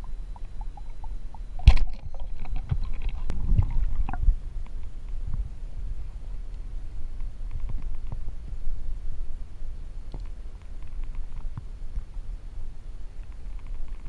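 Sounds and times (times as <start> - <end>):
water sloshing: 0.0 - 4.4
small clicks and thumps: 7.2 - 8.3, 10.1 - 12.1, 13.2 - 14.0.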